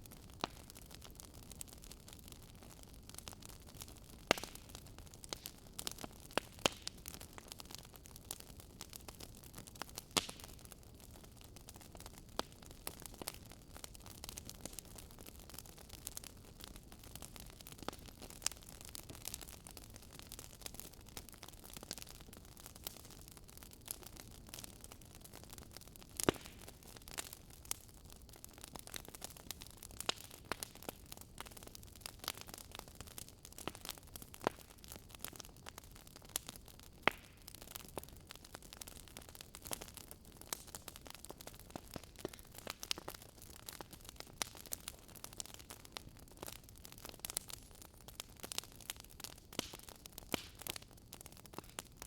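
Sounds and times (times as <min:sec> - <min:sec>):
fireplace fire crackling: 0:00.0 - 0:52.0.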